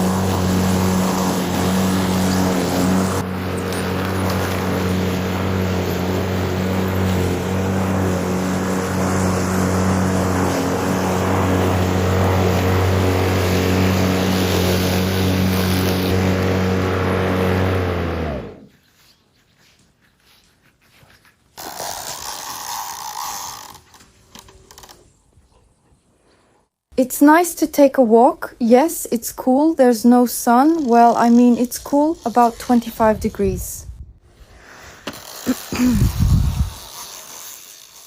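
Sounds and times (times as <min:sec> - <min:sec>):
motor humming: 0:00.0 - 0:18.7.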